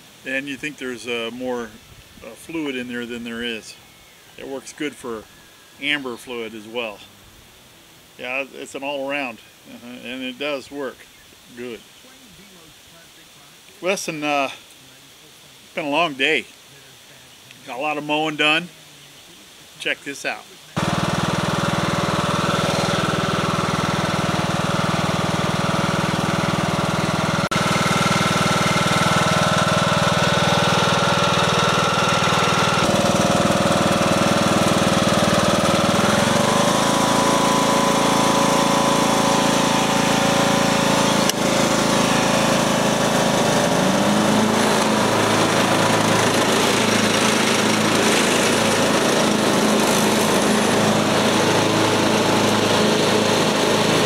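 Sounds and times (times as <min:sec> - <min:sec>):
lawn mower engine running: 0:00.0 - 0:10.8, 0:20.8 - 0:54.0.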